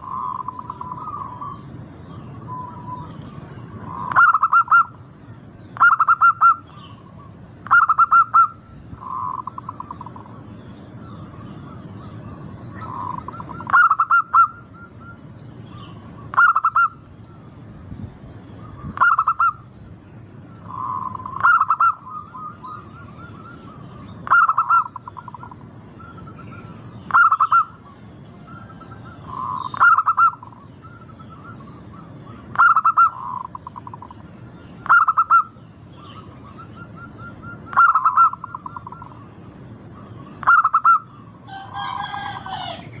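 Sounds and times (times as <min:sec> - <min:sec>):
dove cooing: 0:00.0 - 0:05.1, 0:05.8 - 0:10.4, 0:11.0 - 0:17.0, 0:18.6 - 0:19.6, 0:20.6 - 0:43.0.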